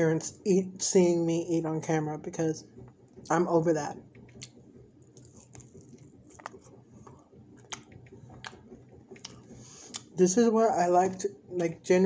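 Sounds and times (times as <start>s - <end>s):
person chewing: 4.3s - 10.2s.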